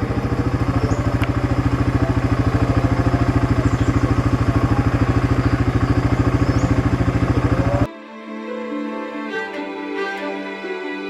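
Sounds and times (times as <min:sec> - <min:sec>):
small engine running steadily: 0:00.0 - 0:07.9.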